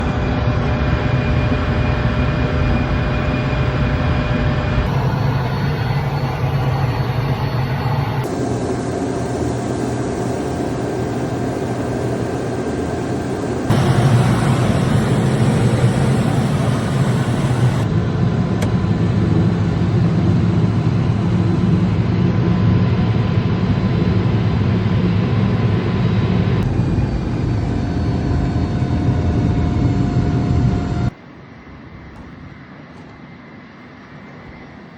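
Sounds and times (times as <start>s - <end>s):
small airplane engine drone: 0.0s - 34.9s.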